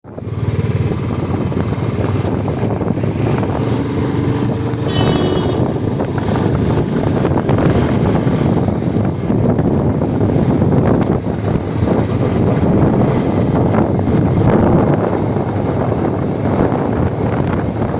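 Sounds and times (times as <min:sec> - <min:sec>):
motorcycle engine running: 0:00.1 - 0:17.9
wind buffeting microphone: 0:00.1 - 0:17.9
brief high tone: 0:04.8 - 0:05.9.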